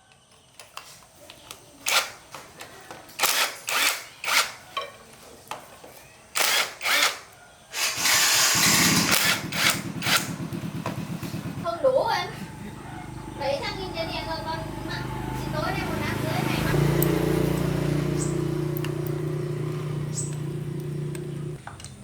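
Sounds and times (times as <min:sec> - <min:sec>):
motor running: 0:06.4 - 0:21.6.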